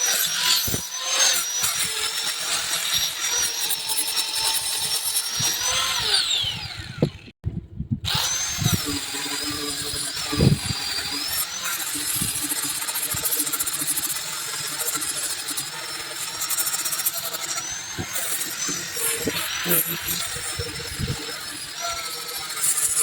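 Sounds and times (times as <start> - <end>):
power tool motor whining: 0.0 - 7.4, 8.0 - 23.0.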